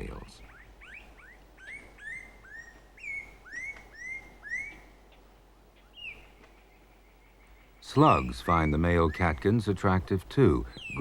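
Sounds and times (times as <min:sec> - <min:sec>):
bird whistling: 0:00.4 - 0:05.0, 0:07.8 - 0:09.5.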